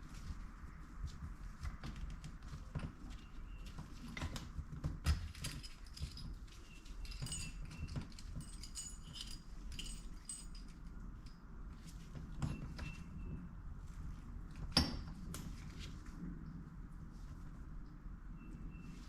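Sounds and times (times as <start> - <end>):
metal parts clinking: 5.2 - 10.8.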